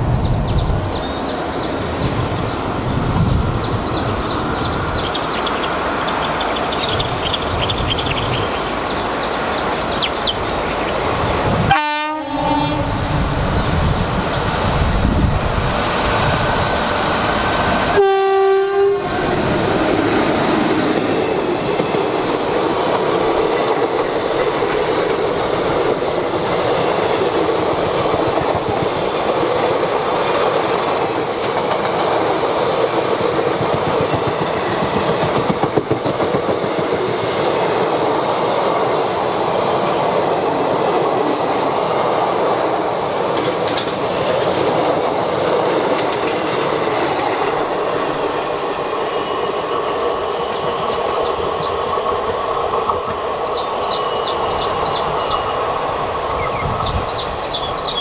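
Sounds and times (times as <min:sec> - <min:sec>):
train coaches rumbling past: 0:00.0 - 0:58.0
wheels clicking over rail joints: 0:20.8 - 0:38.0, 0:42.9 - 0:48.3.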